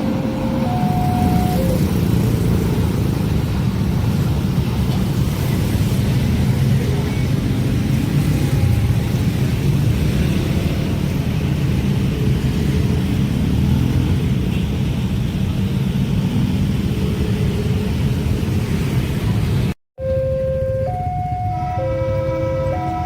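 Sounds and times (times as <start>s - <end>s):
train passing rumble: 0.0s - 14.4s, 20.8s - 23.0s.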